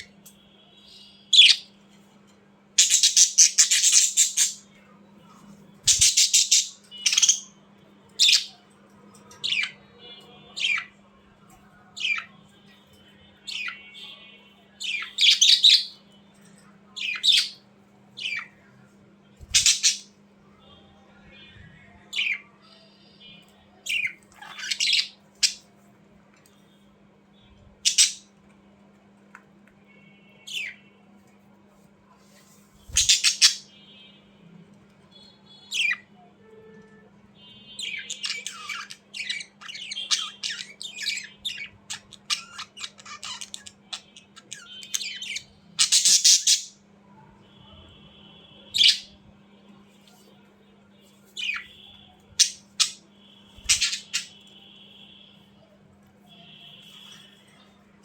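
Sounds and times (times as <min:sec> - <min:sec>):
budgerigars squawking and chattering: 0:05.9 - 0:07.4, 0:19.5 - 0:20.1, 0:27.9 - 0:28.2, 0:32.9 - 0:33.6, 0:37.8 - 0:46.7, 0:52.4 - 0:53.0, 0:53.6 - 0:54.4.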